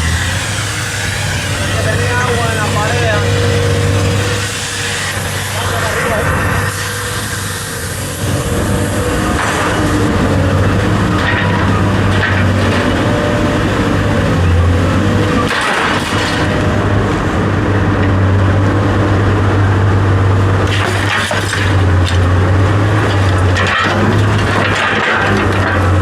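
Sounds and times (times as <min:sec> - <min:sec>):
low motor hum: 0:00.0 - 0:26.0
sharp knocks and clatter: 0:15.4 - 0:16.6, 0:20.6 - 0:22.3, 0:23.0 - 0:26.0.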